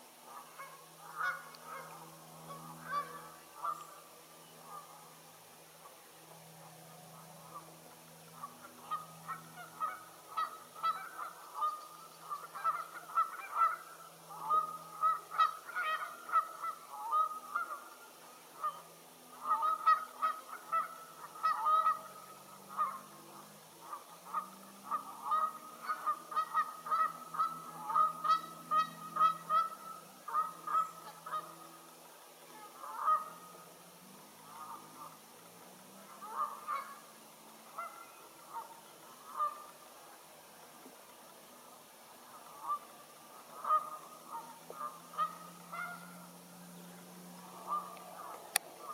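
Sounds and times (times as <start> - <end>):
geese honking: 0.0 - 5.2, 5.8 - 40.0, 42.2 - 48.9.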